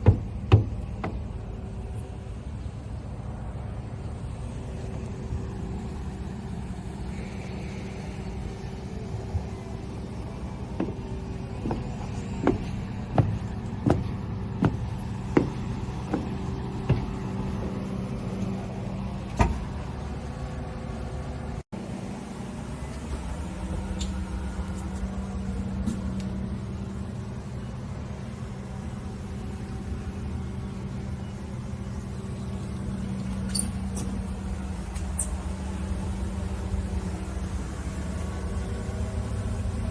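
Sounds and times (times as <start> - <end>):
sharp knocks: 0.0 - 1.5, 10.8 - 17.9
boat engine running: 0.0 - 2.7, 4.3 - 20.9.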